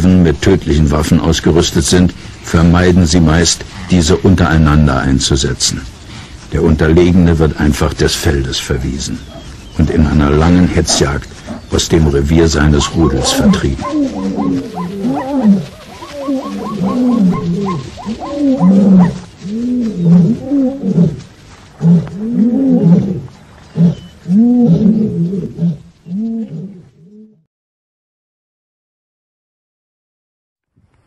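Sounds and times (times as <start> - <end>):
lion roaring: 9.2 - 27.4.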